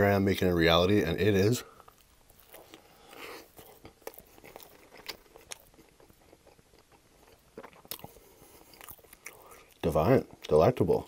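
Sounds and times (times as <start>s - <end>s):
faint wet chewing: 1.6s - 10.7s.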